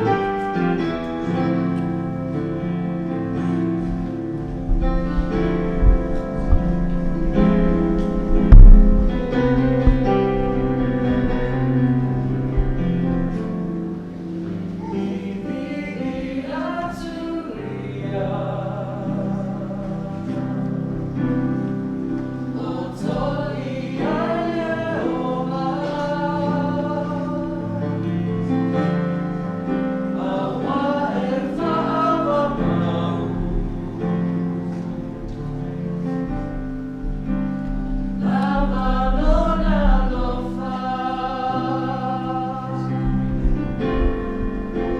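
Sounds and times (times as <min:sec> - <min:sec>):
sustained low accompaniment: 0:00.0 - 0:15.3, 0:25.2 - 0:44.9
group singing gospel: 0:00.0 - 0:36.4, 0:37.2 - 0:44.9.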